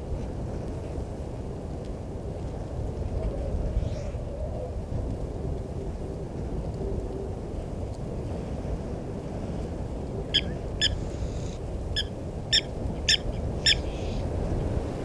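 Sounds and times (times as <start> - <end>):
wind rumble on microphone: 0.0 - 15.0
bird calling sharp notes: 10.4 - 11.0, 12.0 - 14.2.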